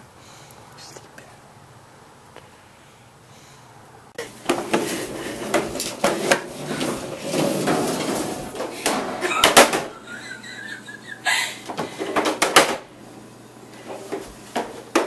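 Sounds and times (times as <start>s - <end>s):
hard objects knocking and clattering: 4.3s - 10.0s, 11.7s - 12.9s, 13.9s - 15.0s.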